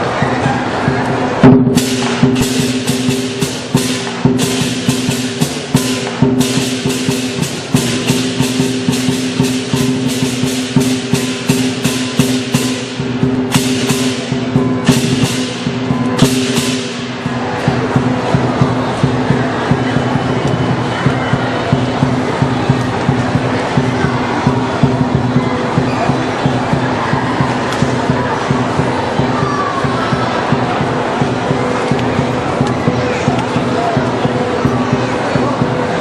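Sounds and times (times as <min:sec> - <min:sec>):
drum beating: 0:00.7 - 0:36.0
cymbal crashes: 0:01.4 - 0:20.4.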